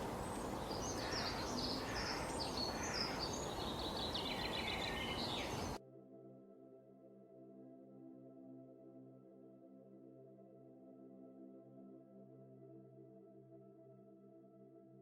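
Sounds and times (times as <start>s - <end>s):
small birds chirping: 0.0s - 5.8s
soft ambient music: 0.0s - 15.0s.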